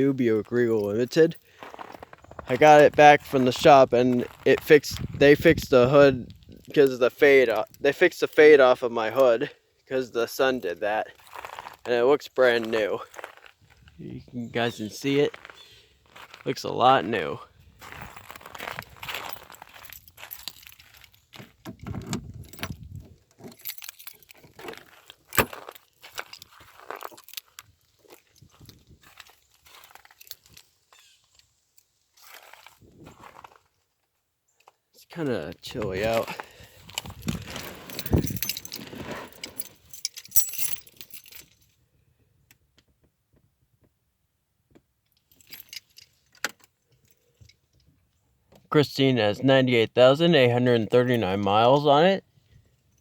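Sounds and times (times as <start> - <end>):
car keys jangling: 17.8 - 31.2, 35.8 - 41.8, 45.2 - 47.9.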